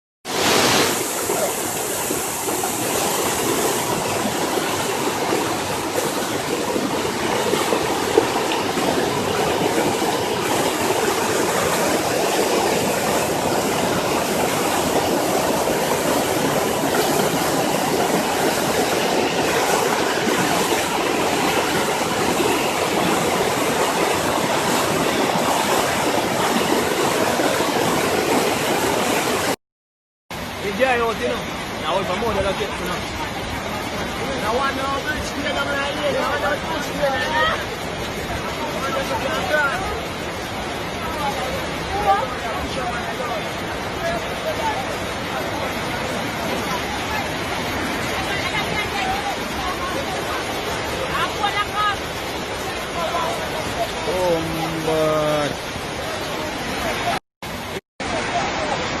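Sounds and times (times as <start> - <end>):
floodwater rushing: 0.2 - 29.6, 30.3 - 59.0.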